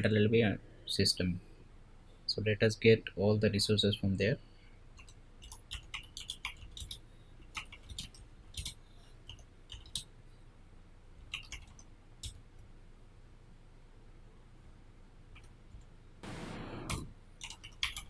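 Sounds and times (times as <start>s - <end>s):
computer keyboard clicks: 5.0s - 10.1s, 11.3s - 12.4s, 16.9s - 18.0s.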